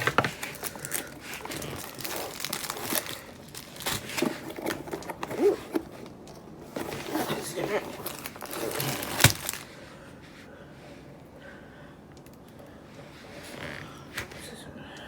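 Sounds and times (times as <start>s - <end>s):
small clicks and crackles: 0.0s - 9.7s
plastic packaging crinkling: 0.0s - 9.8s.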